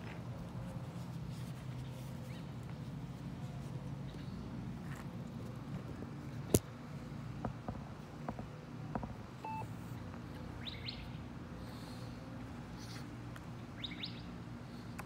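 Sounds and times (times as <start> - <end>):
short beep: 9.4 - 9.7
birds chirping: 10.6 - 11.2, 13.6 - 14.4.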